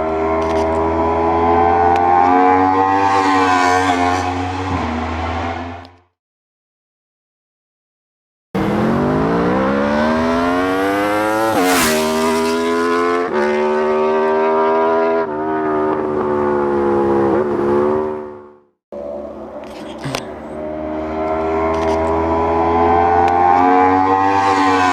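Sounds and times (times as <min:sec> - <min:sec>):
motorcycle engine accelerating: 0:00.0 - 0:05.9, 0:08.6 - 0:24.9
different engine sound: 0:08.6 - 0:24.9.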